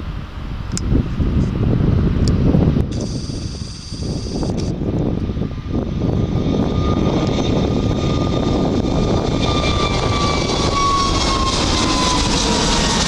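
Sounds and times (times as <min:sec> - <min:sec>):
airliner engines passing: 0:00.0 - 0:13.0
thin falling whine: 0:02.9 - 0:04.8.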